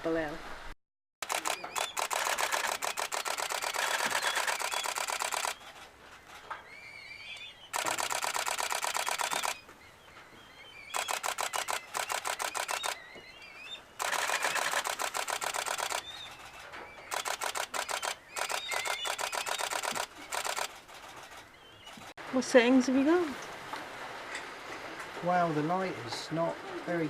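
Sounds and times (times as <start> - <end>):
camera shutter clicking in bursts: 1.2 - 5.9, 7.7 - 9.6, 10.9 - 13.0, 14.0 - 22.1.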